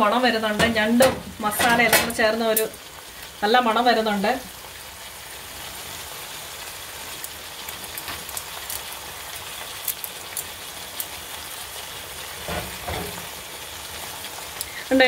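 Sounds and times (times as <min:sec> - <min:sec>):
food sizzling in oil: 0:00.0 - 0:15.0
oil pops and crackles: 0:07.2 - 0:11.2.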